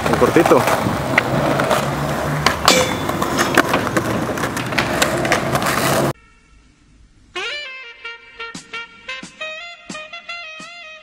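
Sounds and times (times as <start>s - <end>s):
skateboard clacks and knocks: 0.0s - 6.1s
skateboard wheels rolling: 0.0s - 6.2s.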